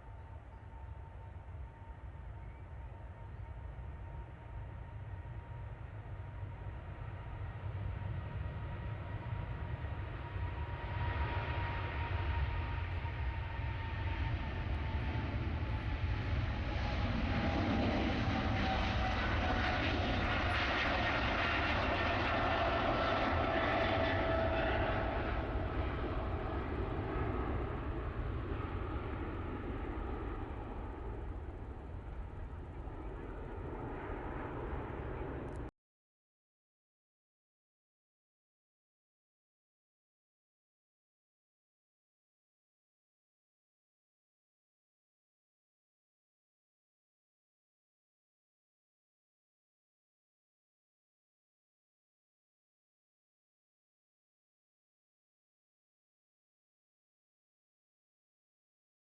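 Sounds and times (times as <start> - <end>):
jet engines at takeoff: 0.0 - 35.7.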